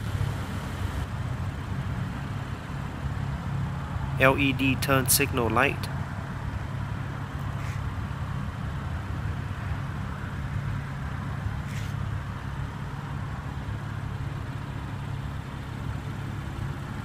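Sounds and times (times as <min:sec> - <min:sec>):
low rumble of road traffic: 0:00.0 - 0:17.0.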